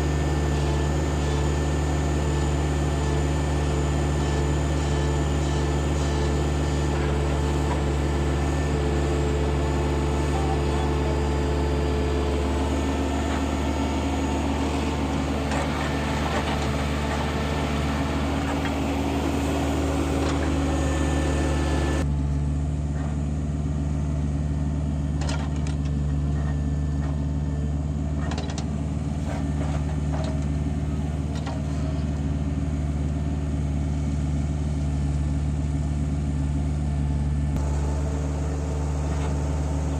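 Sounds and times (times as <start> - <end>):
heavy diesel engines droning: 0.0 - 39.9
knocks and clunks: 15.1 - 17.5, 28.2 - 30.6.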